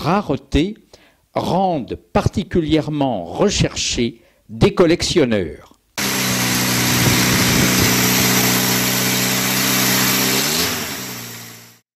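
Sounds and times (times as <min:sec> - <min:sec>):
small car engine idling: 0:06.0 - 0:11.8.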